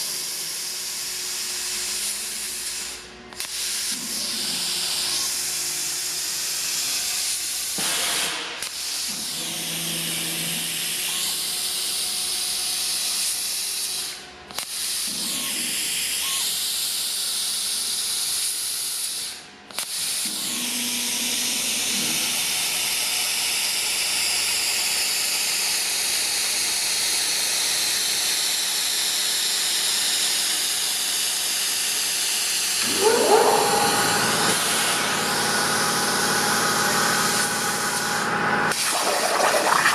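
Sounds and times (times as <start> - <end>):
gliding whine: 32.8 - 38.7.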